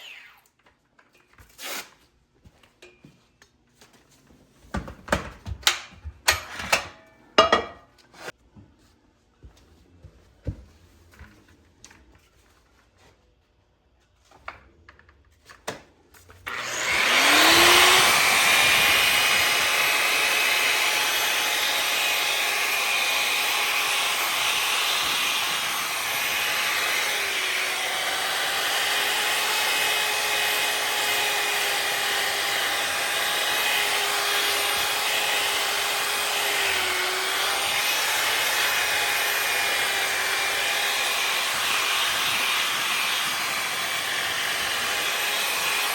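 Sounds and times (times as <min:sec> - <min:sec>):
grinder whine: 0:00.0 - 0:00.7, 0:16.5 - 0:45.9
sanding pad grinding cast iron: 0:16.5 - 0:45.9.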